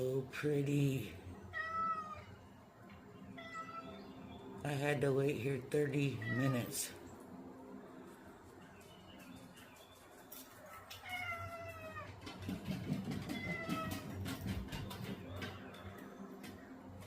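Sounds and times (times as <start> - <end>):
cat meowing: 1.5 - 2.3, 3.4 - 4.0, 6.2 - 7.0, 10.7 - 12.2, 13.2 - 14.1.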